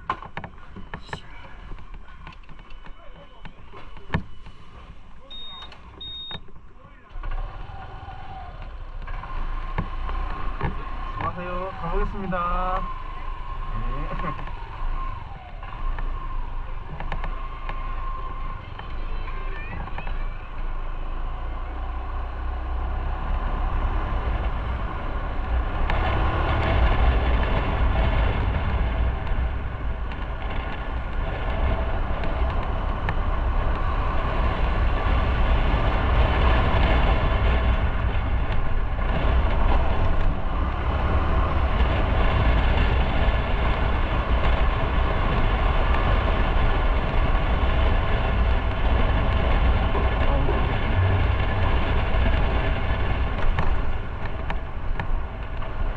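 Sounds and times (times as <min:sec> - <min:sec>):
wind and road noise: 0:00.0 - 0:55.9
motorcycle engine accelerating: 0:07.2 - 0:55.9.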